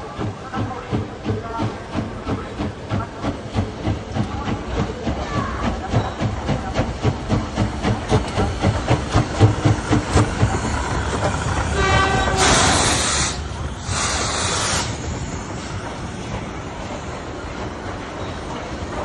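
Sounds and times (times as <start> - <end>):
steam locomotive chugging: 0.0 - 19.0
steam hissing bursts: 7.0 - 16.3
locomotive whistle: 11.7 - 13.4.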